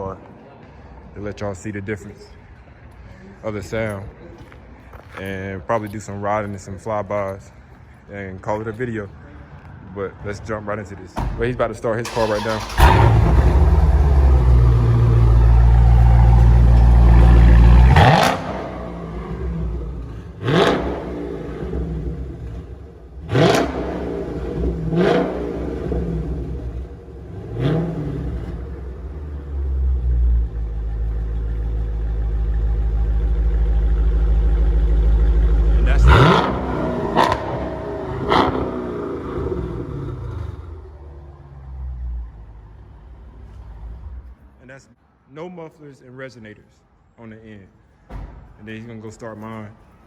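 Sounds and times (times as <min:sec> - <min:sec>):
engine throttle blips: 0:11.2 - 0:42.4
car engine fast idle: 0:12.0 - 0:17.1.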